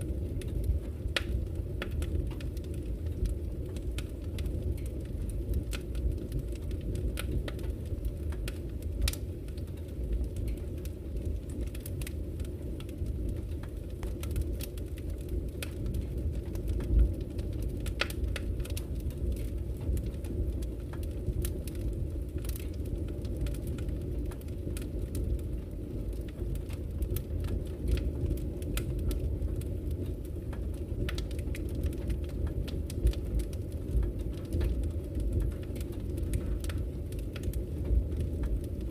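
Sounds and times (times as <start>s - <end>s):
fire pops and snaps: 0.0s - 38.9s
wood fire crackling: 0.0s - 38.9s.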